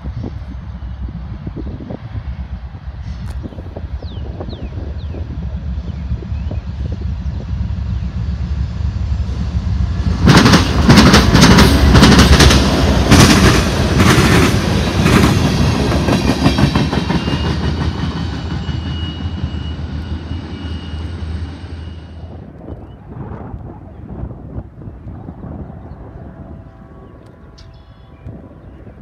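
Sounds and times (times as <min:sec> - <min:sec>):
diesel locomotive rumble: 0:00.0 - 0:29.0
train wheels clattering over rail joints: 0:10.0 - 0:19.1
faint high squeal: 0:18.4 - 0:22.4.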